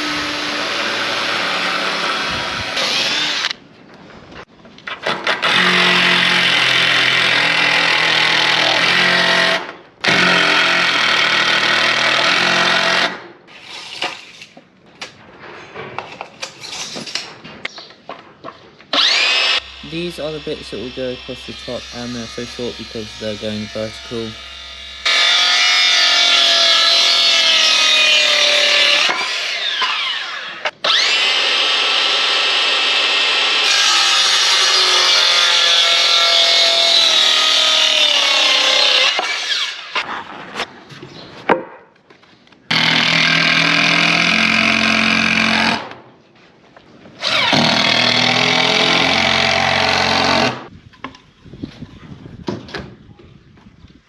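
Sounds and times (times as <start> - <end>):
power saw cutting wood: 0.0 - 3.6, 5.4 - 13.1, 19.0 - 40.0, 42.7 - 45.8, 47.2 - 50.7.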